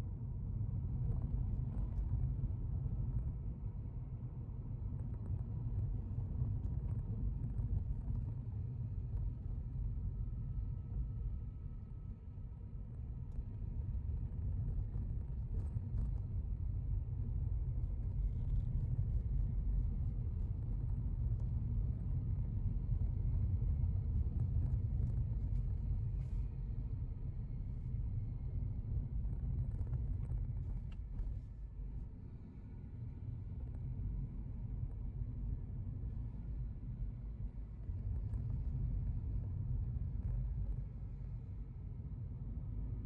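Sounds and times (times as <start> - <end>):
car road and engine rumble: 0.2 - 43.0.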